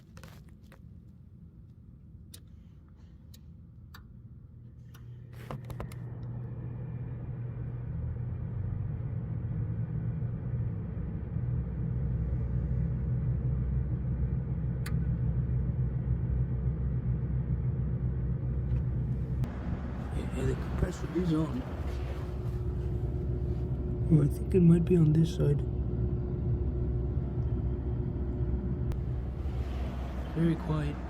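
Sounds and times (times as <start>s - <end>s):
air conditioner humming: 16.8s - 31.0s.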